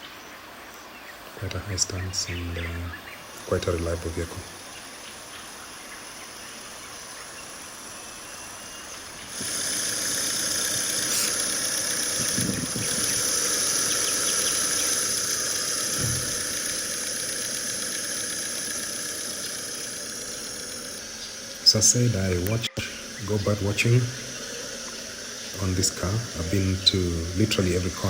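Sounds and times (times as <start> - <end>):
vehicle hiss: 1.4 - 28.0.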